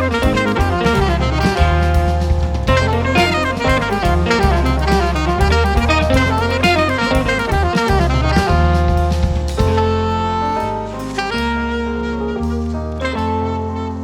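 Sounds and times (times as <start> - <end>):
drum hits: 0.0 - 10.2
jazz band playing live: 0.0 - 14.0
saxophone: 0.0 - 14.0.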